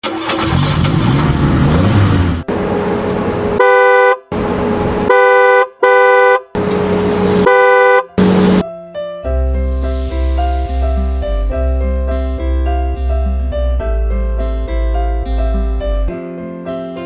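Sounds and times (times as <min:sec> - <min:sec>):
engine noise: 0:00.0 - 0:05.3, 0:06.5 - 0:08.6
vehicle horn honking: 0:03.6 - 0:04.3, 0:05.1 - 0:06.6, 0:07.3 - 0:08.6.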